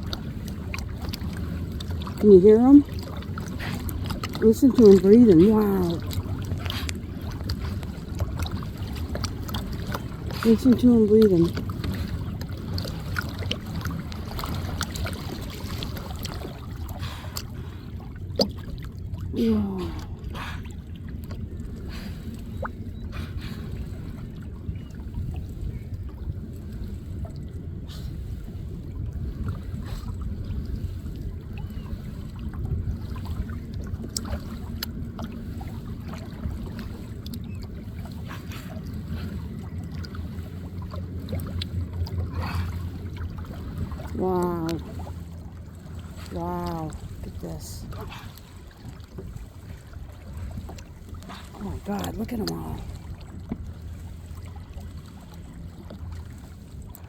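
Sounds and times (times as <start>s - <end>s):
small splashes: 0.0s - 21.4s
steady low rumble: 0.0s - 57.0s
water lapping and dripping: 0.0s - 57.0s.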